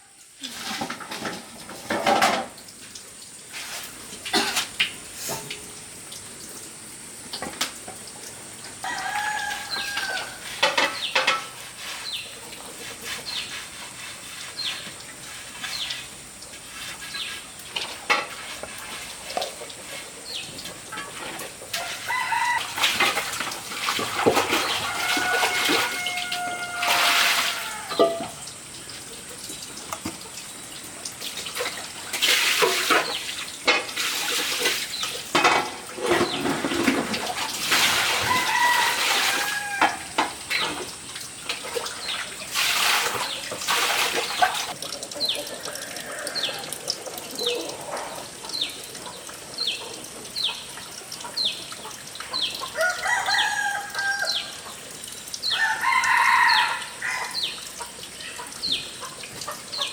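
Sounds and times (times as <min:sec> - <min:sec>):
water splashing: 0:00.4 - 0:59.9
rooster crowing: 0:08.8 - 0:10.6, 0:21.8 - 0:23.1, 0:24.6 - 0:28.3, 0:38.0 - 0:40.2, 0:45.7 - 0:46.8, 0:52.8 - 0:54.6, 0:55.5 - 0:57.4.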